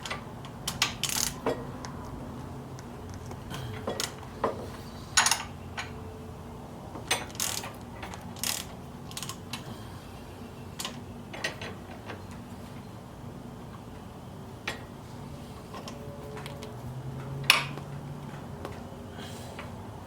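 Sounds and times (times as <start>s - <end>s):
ratchet wrench clicking: 0.7s - 1.5s.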